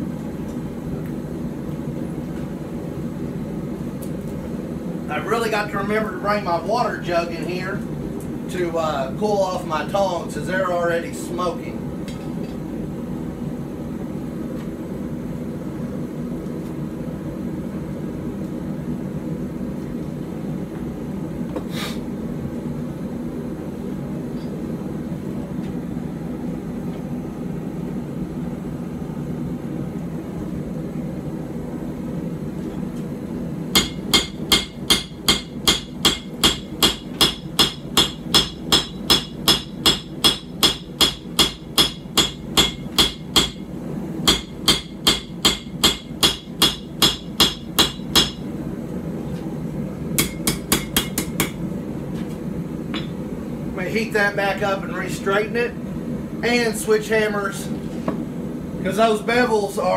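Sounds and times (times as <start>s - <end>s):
forge running: 24.8s - 56.4s
hammer ringing on anvil: 33.8s - 43.6s, 44.3s - 48.4s, 50.2s - 51.6s.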